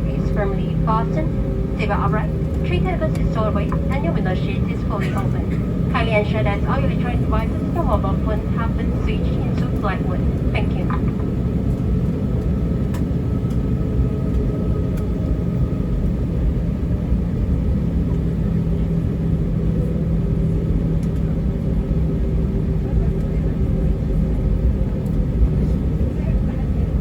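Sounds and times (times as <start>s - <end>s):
faint steady hums: 0.0s - 15.1s
aircraft cabin engine rumble: 0.0s - 27.0s.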